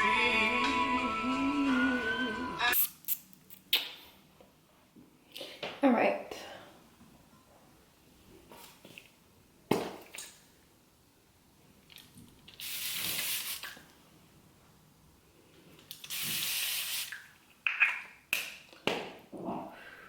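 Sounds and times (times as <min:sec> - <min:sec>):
hissing spray bursts: 0:16.1 - 0:17.1.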